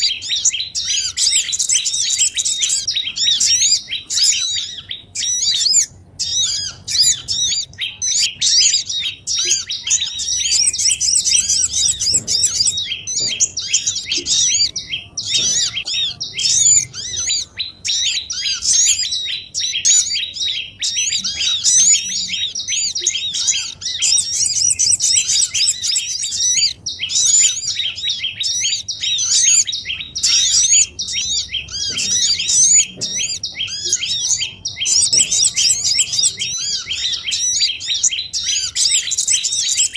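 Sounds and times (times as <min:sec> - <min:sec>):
songbirds chirping and chattering: 0:00.0 - 0:39.9.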